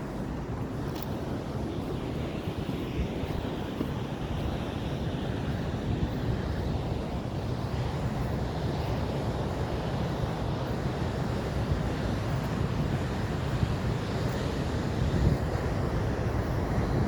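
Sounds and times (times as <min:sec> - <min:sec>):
sea: 0:00.0 - 0:17.0
wind buffeting microphone: 0:00.0 - 0:17.0.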